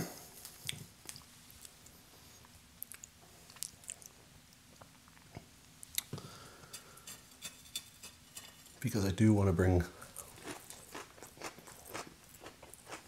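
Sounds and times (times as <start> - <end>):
chewing pizza: 0.4 - 6.2, 10.0 - 13.0.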